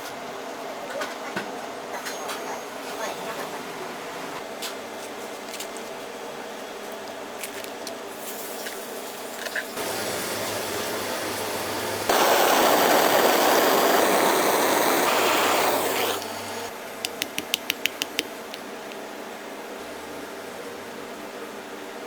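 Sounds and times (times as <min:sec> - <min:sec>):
food sizzling on a griddle: 0:08.2 - 0:16.7
steam hissing: 0:09.8 - 0:16.7.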